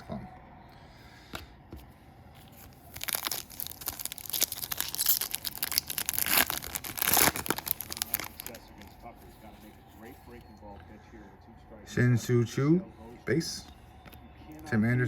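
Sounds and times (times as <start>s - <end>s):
foil wrapper tearing and crinkling: 2.6s - 9.0s.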